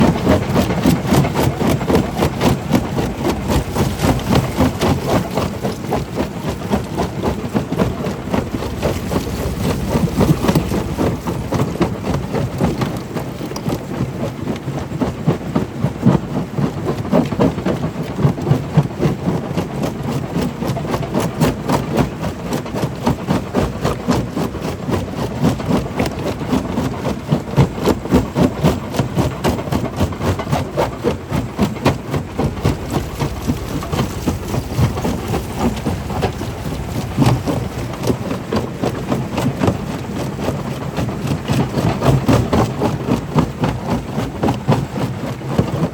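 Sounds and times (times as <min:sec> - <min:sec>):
stone crusher rumbling: 0:00.0 - 0:13.9, 0:29.9 - 0:43.2.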